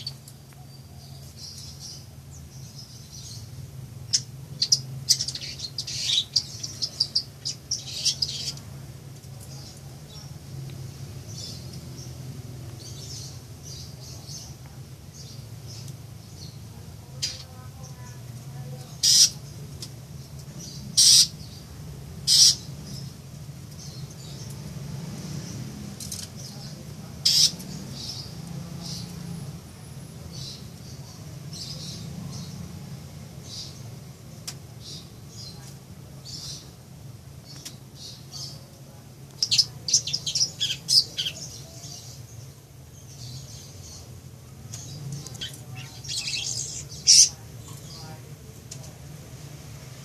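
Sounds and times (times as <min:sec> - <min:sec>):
bird giving harsh calls: 0:19.0 - 0:19.4, 0:20.9 - 0:21.4, 0:22.2 - 0:22.7, 0:27.2 - 0:27.6.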